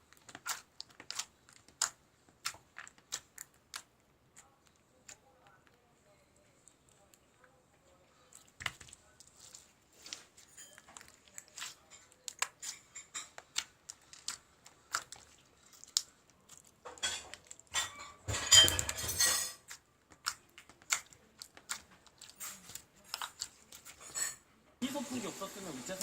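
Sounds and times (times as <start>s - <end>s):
small hard objects clattering: 16.8s - 19.6s.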